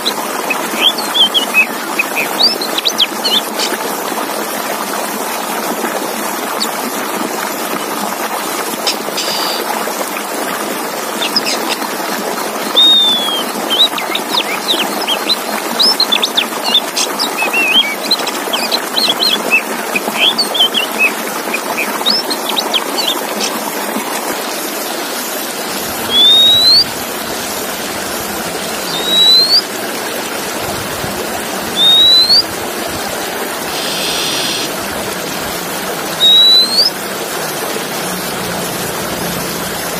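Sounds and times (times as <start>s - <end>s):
bird chirps and trills: 0.0s - 3.8s, 8.8s - 9.7s, 11.2s - 11.9s, 12.7s - 23.6s, 25.7s - 27.0s, 28.1s - 29.7s, 31.7s - 32.6s, 33.7s - 34.7s, 36.1s - 37.0s
short rising bird whistle: 12.8s - 14.5s, 17.4s - 18.0s, 26.1s - 26.9s, 28.9s - 29.7s, 31.8s - 32.5s, 33.7s - 34.7s, 36.2s - 36.9s.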